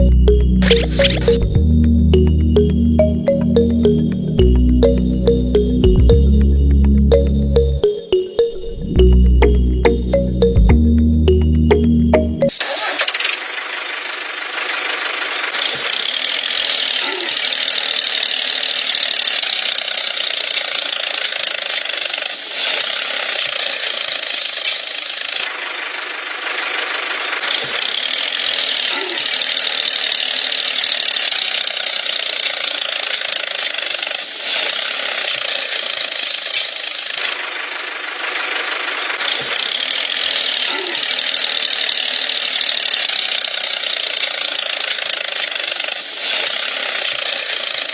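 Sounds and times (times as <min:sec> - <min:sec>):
small electric motor whirring: 0:12.6 - 0:47.9.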